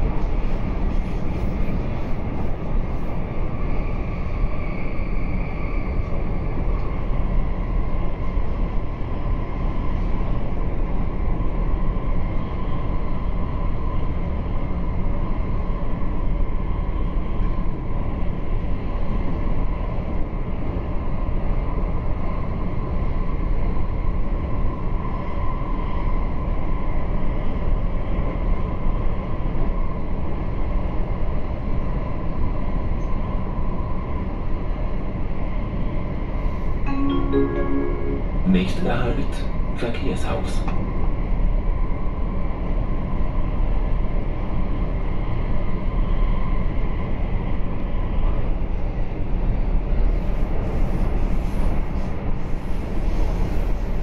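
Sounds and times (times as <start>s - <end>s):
train wheels rumbling on rail: 0.0s - 36.8s, 39.3s - 54.0s.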